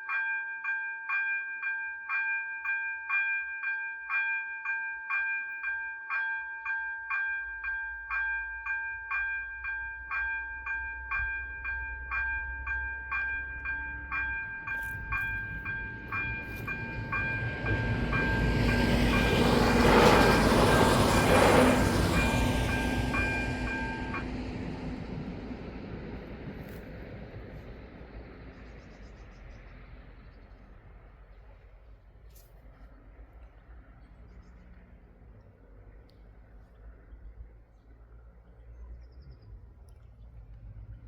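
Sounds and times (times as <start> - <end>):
level crossing bells chiming: 0.0 - 24.6
train rumbling past: 7.5 - 32.0.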